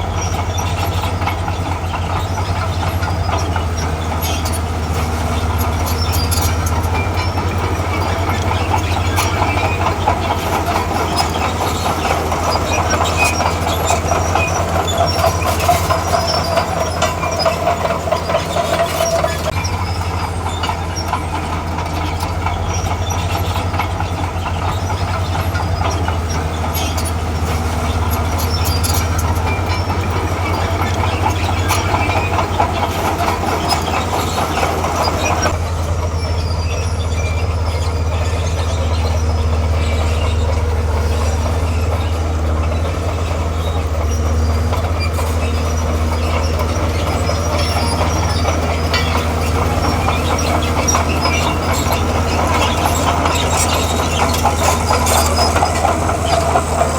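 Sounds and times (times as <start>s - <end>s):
bulldozer diesel engine: 0.0s - 56.9s
metallic squeal: 0.0s - 56.9s
steel tracks clanking: 0.0s - 56.9s.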